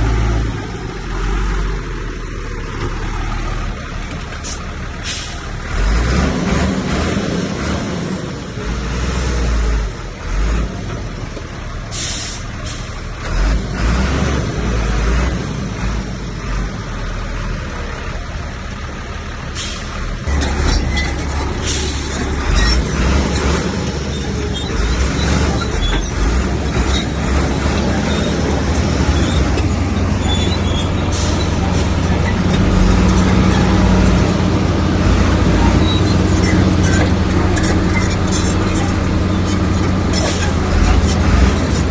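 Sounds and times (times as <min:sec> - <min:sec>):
diesel earth-moving machine engine: 0:00.0 - 0:41.9
clanks and scrapes: 0:19.6 - 0:34.5, 0:35.1 - 0:41.9.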